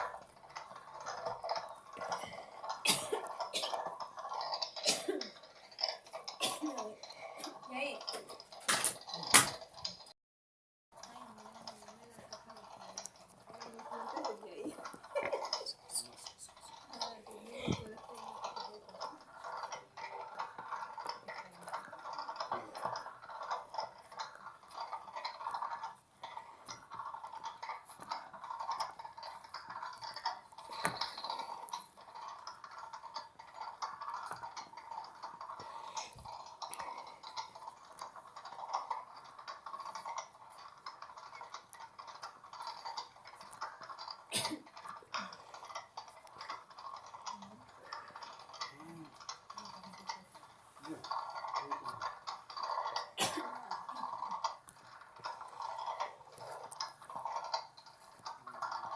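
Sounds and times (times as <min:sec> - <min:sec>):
small washing machine clicking: 0:00.0 - 0:10.1, 0:10.9 - 0:58.9.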